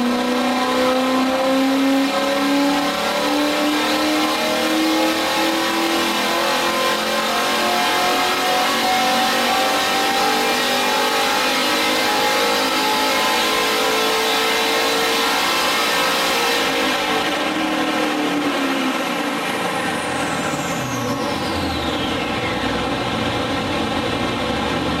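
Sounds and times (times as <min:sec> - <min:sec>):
high whine: 0:16.6 - 0:25.0.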